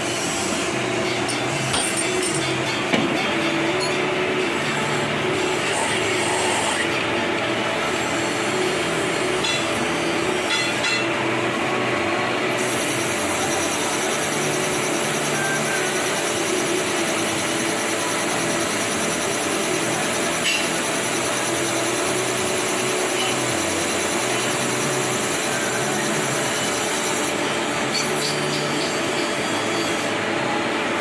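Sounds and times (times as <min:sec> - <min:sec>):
machine tool running: 0:12.4 - 0:30.3.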